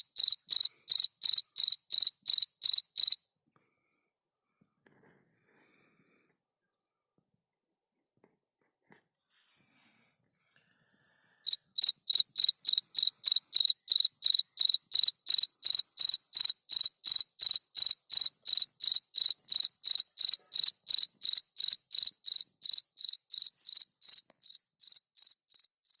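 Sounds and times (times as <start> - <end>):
cricket chirping: 0.0 - 5.4, 11.4 - 26.0.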